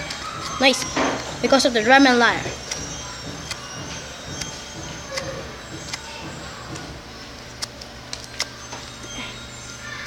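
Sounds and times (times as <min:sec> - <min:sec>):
faint drum and lyre band: 0:00.0 - 0:07.2
sharp clicks: 0:00.0 - 0:09.2.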